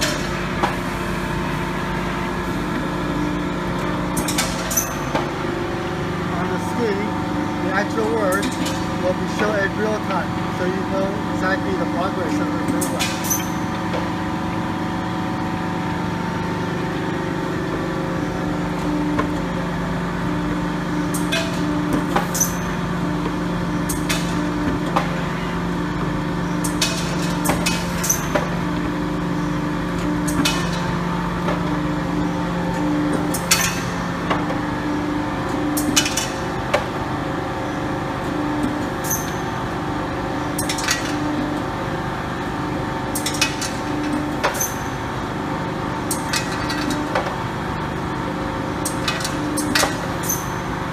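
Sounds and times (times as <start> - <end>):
hydraulic unit hum: 0.0 - 50.9.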